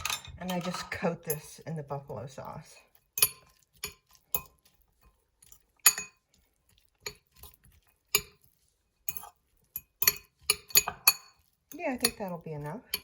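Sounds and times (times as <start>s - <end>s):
utensil clinking against bowl: 0.0s - 1.7s, 2.9s - 13.0s.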